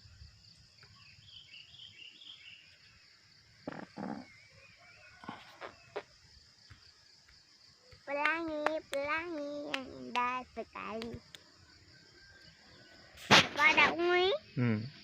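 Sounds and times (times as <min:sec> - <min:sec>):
high-pitched insect chorus: 0:00.0 - 0:15.0
bird chirping and twittering: 0:00.6 - 0:03.0, 0:03.6 - 0:06.9
short loud noises: 0:13.2 - 0:13.9.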